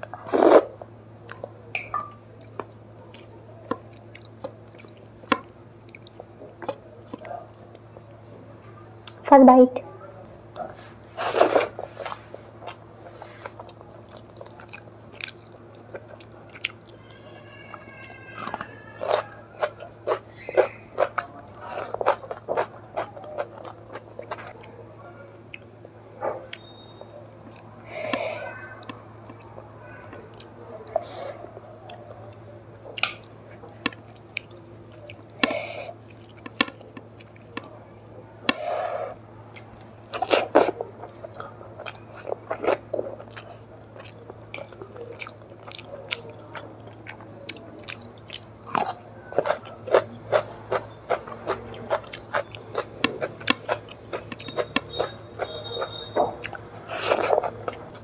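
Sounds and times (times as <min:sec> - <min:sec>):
crunchy bite: 0:17.8 - 0:24.4, 0:47.1 - 0:58.0
wet chewing and lip smacks: 0:18.0 - 0:27.7, 0:28.8 - 0:37.8, 0:39.5 - 0:58.0.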